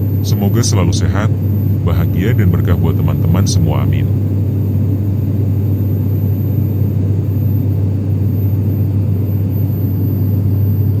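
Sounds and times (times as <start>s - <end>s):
airplane cabin drone: 0.0s - 11.0s.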